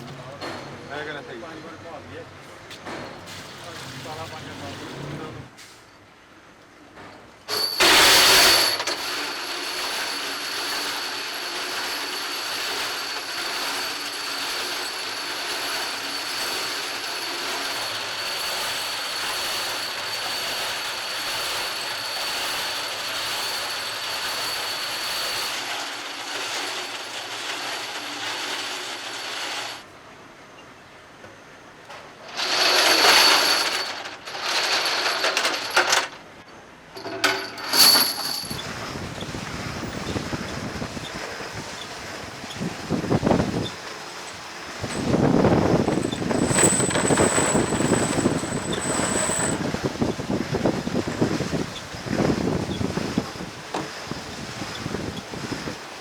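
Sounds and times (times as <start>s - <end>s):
metalworking machine with high whine: 7.5s - 29.9s, 37.0s - 56.0s.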